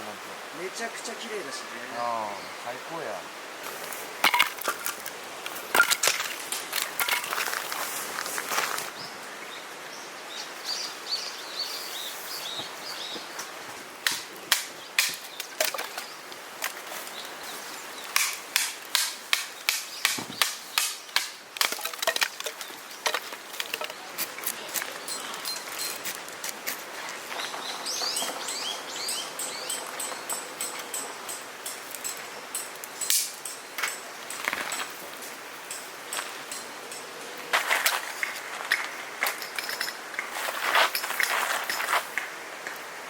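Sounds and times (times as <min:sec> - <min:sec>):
dry wood cracking and snapping: 0:18.1 - 0:27.2, 0:32.8 - 0:33.6
bird chirping: 0:22.0 - 0:26.0, 0:27.3 - 0:33.1.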